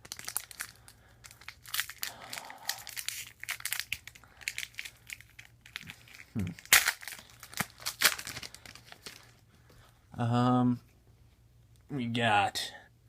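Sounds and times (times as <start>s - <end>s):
foil wrapper crinkling: 0.0s - 9.4s
cards being handled: 2.9s - 9.3s.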